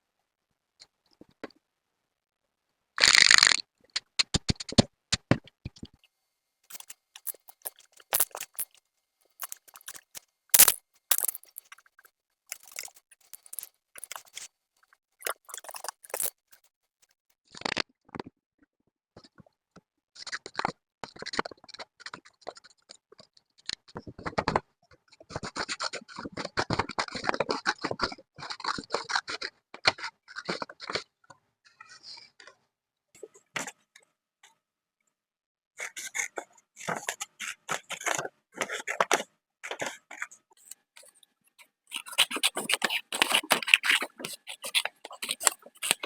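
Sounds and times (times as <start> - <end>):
paper scratching and rustling: 6.7 - 8.6, 9.4 - 11.7, 12.5 - 14.5, 15.3 - 16.5, 40.6 - 46.0.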